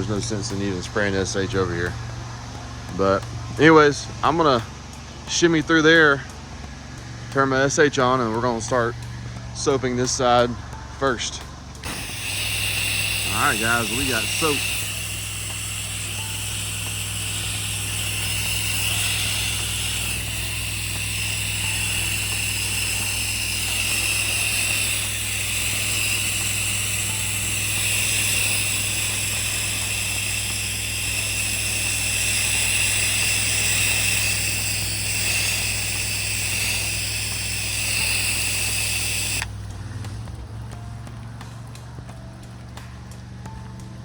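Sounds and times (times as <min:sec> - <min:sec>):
pressure washer engine hum: 0:00.0 - 0:42.8
spray hissing: 0:11.8 - 0:39.7.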